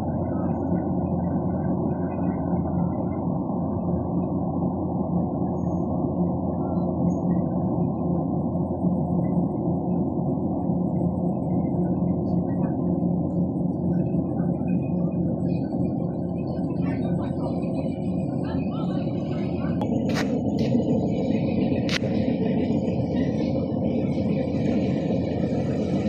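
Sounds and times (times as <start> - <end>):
combine harvester droning: 9.6 - 26.0.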